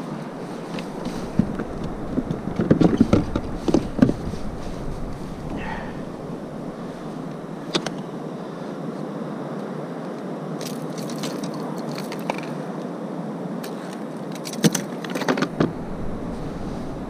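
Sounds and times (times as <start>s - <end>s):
wind and sea noise: 0.0s - 17.0s
fishing tackle clicking and rattling: 10.6s - 12.6s.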